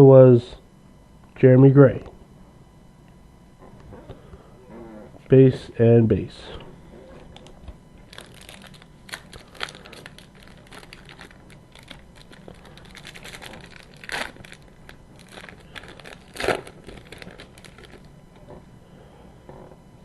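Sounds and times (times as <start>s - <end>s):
foil wrapper crinkling and tearing: 7.2s - 18.1s.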